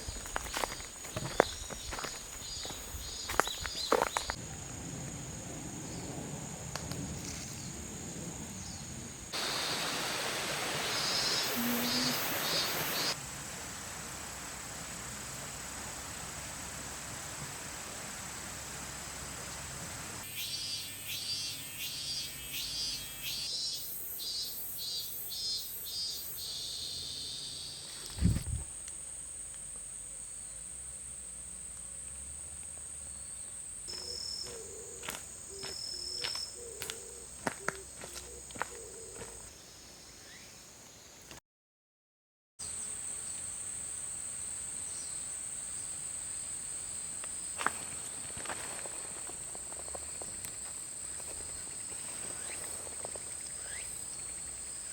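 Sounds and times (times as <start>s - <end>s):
background hiss: 0.0s - 34.4s
insects chirping: 0.0s - 41.2s, 42.6s - 54.9s
insects droning: 0.0s - 41.2s, 42.6s - 54.9s
low thump: 28.2s - 28.7s.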